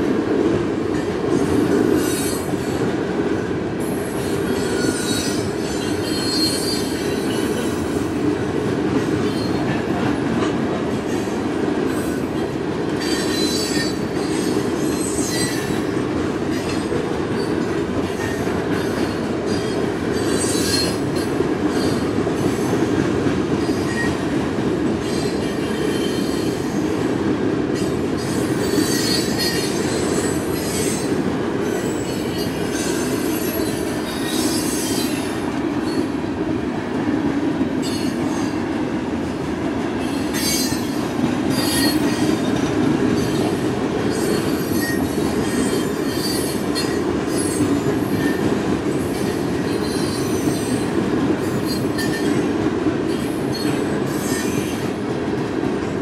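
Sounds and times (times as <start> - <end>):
train wheels rumbling on rail: 0.0 - 56.0
wheel squeal: 4.5 - 7.0, 40.4 - 42.2, 44.1 - 48.4.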